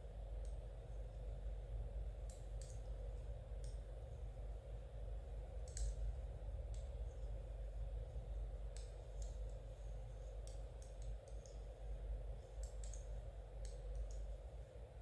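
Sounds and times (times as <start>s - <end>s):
steady low hum: 0.0s - 15.0s
knitting needles clicking: 2.2s - 2.8s, 5.6s - 6.0s, 12.6s - 14.3s.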